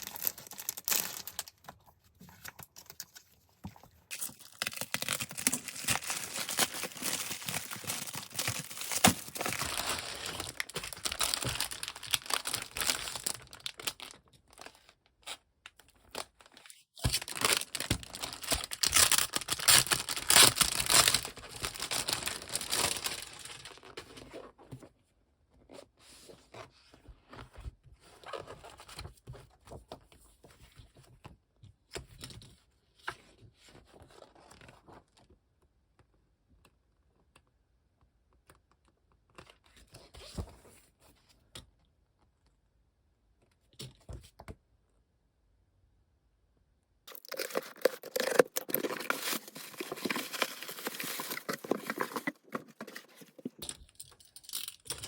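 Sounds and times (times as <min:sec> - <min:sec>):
packaging tearing and crinkling: 0:00.0 - 0:01.6, 0:04.1 - 0:14.9, 0:16.0 - 0:24.0, 0:47.1 - 0:53.7.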